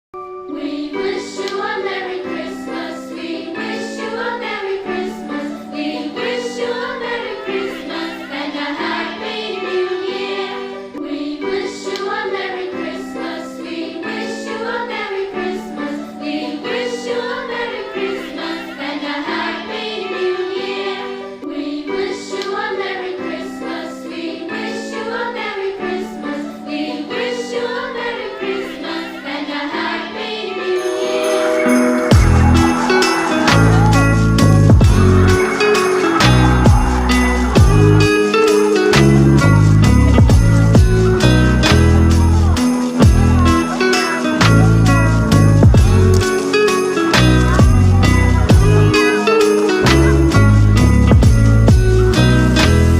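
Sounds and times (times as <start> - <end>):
choir singing: 0.4 - 51.3
instrumental backing: 30.7 - 52.9.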